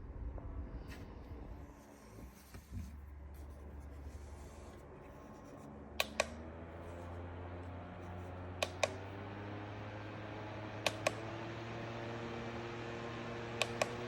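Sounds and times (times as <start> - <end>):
desk fan motor humming: 1.6 - 14.0
fan switch double clicks: 6.0 - 6.4, 8.6 - 9.0, 10.8 - 11.3, 13.6 - 14.0.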